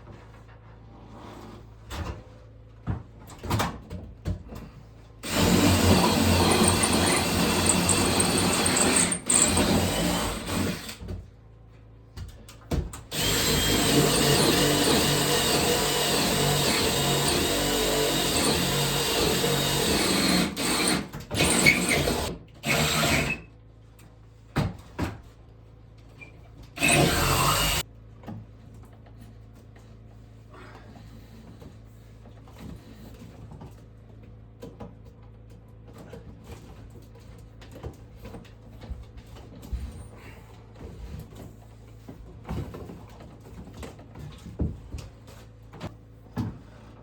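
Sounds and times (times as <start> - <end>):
power drill running: 5.2 - 11.0, 13.1 - 23.4, 26.8 - 27.8.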